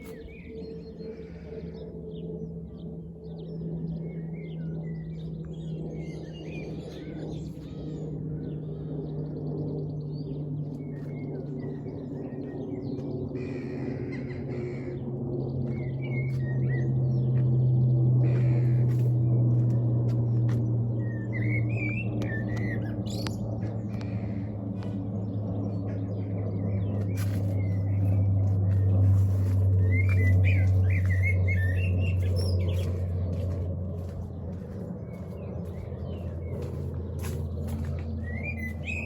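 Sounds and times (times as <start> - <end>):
aircraft engines droning overhead: 0.0 - 39.0
small birds chirping: 15.4 - 39.0.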